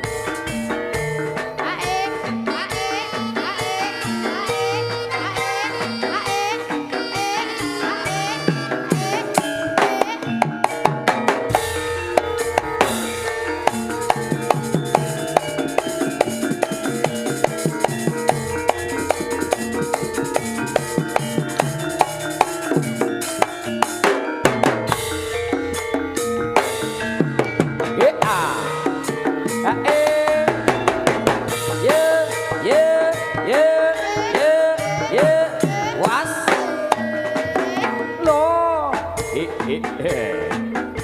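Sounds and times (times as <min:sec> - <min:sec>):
fast drumming: 0:00.0 - 0:41.0
sustained pitched tones: 0:01.5 - 0:24.0.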